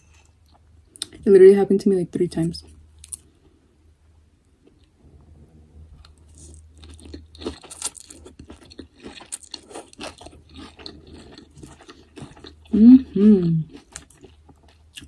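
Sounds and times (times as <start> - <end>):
chewing and crunching food: 6.0 - 15.0.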